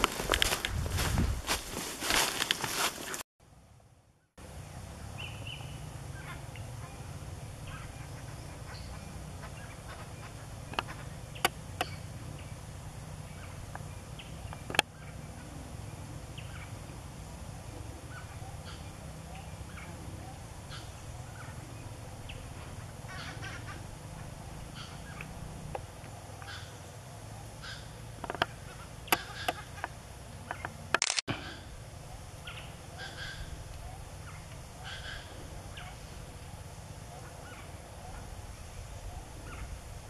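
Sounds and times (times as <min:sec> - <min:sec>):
steady low rumble: 0:03.5 - 0:40.0
wild birds calling: 0:04.5 - 0:40.0
sharp clicks: 0:30.5 - 0:31.4.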